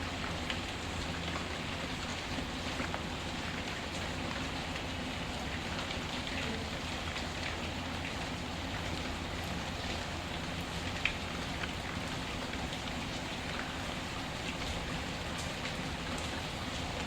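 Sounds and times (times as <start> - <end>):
faint wood fire crackles: 0.0 - 17.0
rain falling: 0.0 - 17.0.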